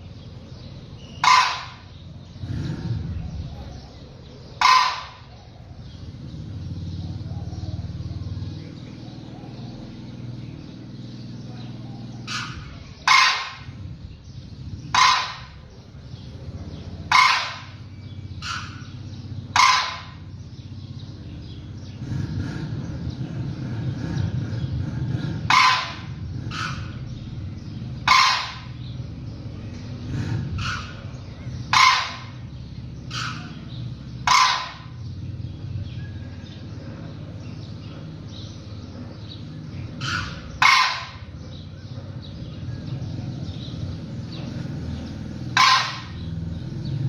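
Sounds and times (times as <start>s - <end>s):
fainter bird calls: 0.0s - 22.0s, 25.3s - 47.0s
bird calling loudly: 0.0s - 22.1s, 24.2s - 47.0s
low rumble: 0.0s - 47.0s.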